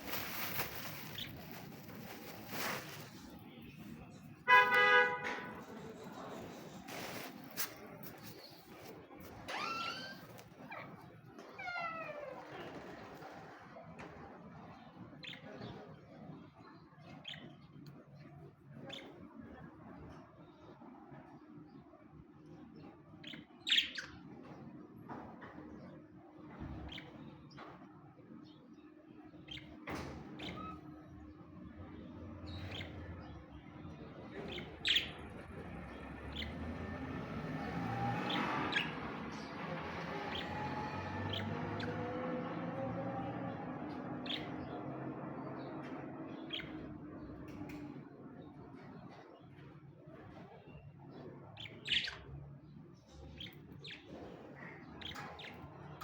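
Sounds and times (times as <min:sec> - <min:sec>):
budgerigars chirping: 0:32.5 - 0:33.1, 0:34.3 - 0:35.4, 0:37.6 - 0:40.7, 0:41.3 - 0:42.0, 0:51.6 - 0:52.2.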